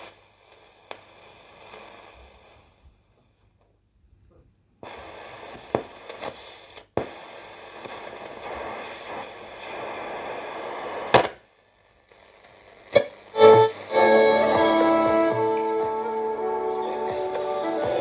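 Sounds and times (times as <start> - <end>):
radio static hiss with whistles: 0.0 - 3.2, 4.8 - 14.5, 16.2 - 18.0
radio station broadcast: 13.0 - 18.0.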